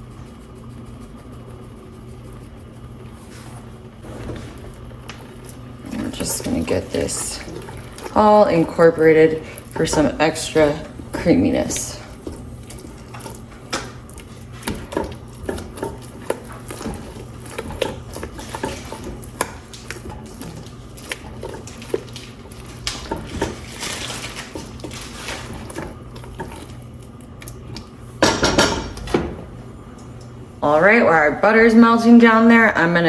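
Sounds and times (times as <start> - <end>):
utensil stirring and scraping pot: 0.0 - 29.0.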